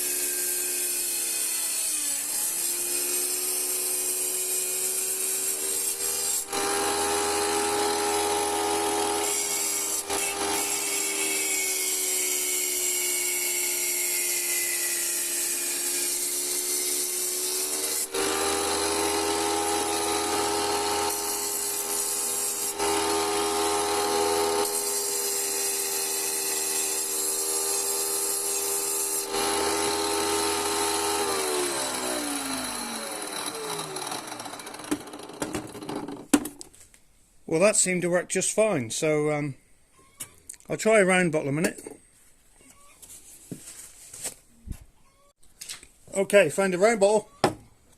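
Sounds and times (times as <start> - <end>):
tile cutter running: 0.0 - 36.2
blade grinding through glass: 17.7 - 34.9
motor winding down: 29.3 - 36.1.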